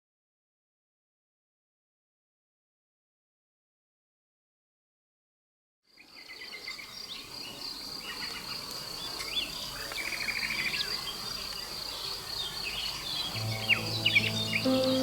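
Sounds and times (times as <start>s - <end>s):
birds chirping and trilling: 6.1s - 15.0s.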